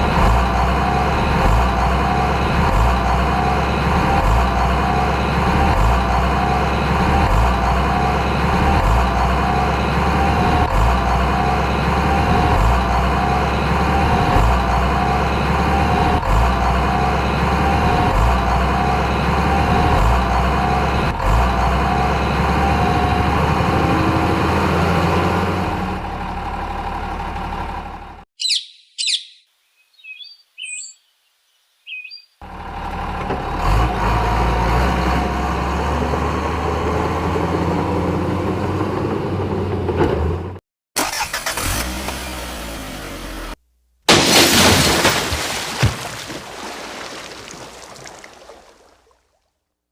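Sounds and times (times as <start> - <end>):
heavy vehicle engine running: 0.0 - 28.2, 32.4 - 44.4
bird chirps: 28.4 - 32.4.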